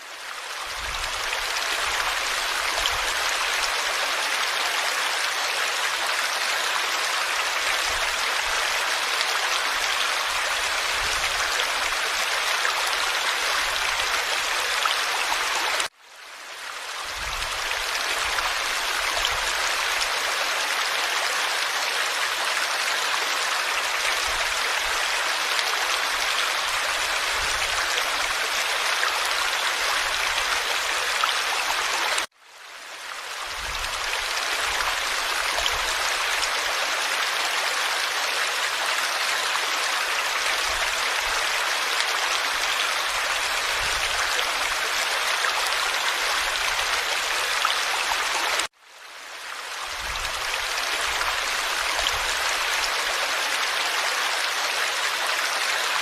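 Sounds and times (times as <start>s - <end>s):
forest stream flowing: 0.0s - 56.0s.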